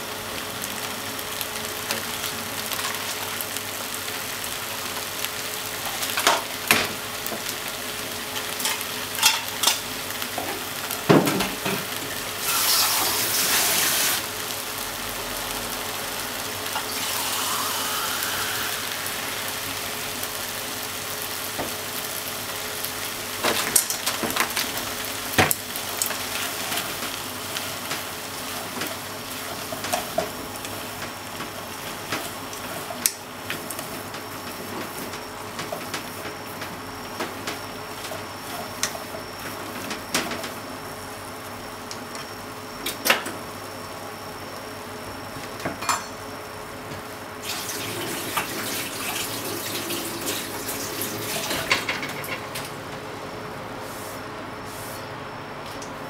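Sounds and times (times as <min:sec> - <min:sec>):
food sizzling in a pot: 0:00.0 - 0:52.9.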